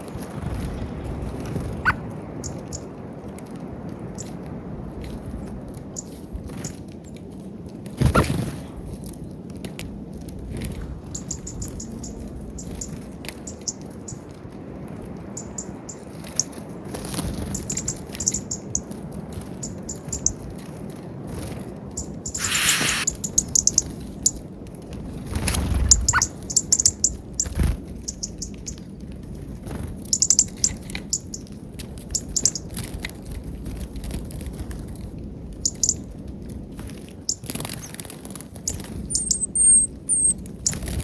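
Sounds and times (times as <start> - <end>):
high bird chirps: 22.3 - 23.9, 38.7 - 40.4.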